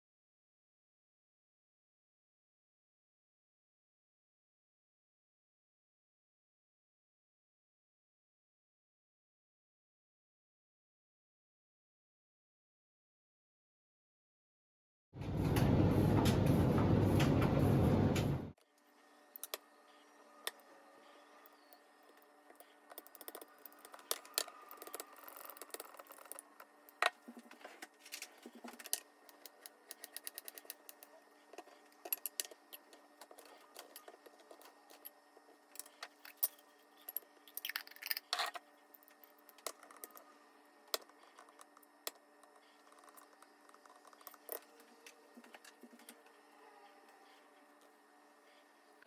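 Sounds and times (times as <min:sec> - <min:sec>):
faint steady hum: 0:15.2 - 0:49.0
objects clicking and knocking: 0:22.5 - 0:40.3.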